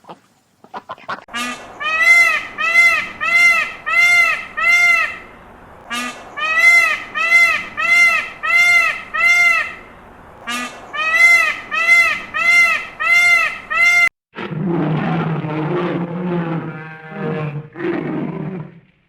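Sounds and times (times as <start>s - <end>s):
high-pitched animal calls: 1.3s - 5.3s.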